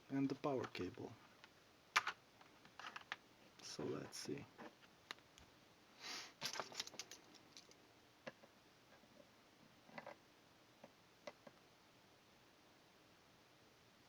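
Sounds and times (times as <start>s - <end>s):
small parts clicking: 6.4s - 7.8s.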